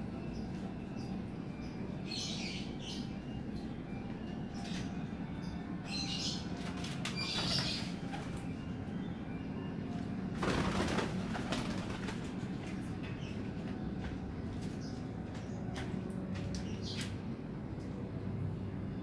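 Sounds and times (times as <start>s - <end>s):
wings fluttering: 10.4s - 12.4s.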